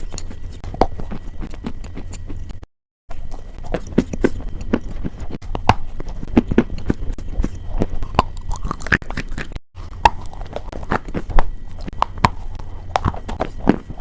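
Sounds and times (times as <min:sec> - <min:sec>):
brittle crunching: 0:03.2 - 0:14.0.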